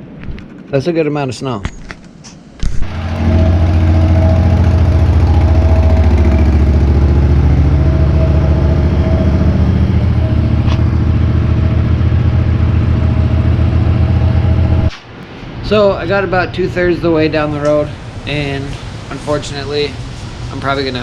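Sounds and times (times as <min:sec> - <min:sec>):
small engine running: 0:02.8 - 0:14.9.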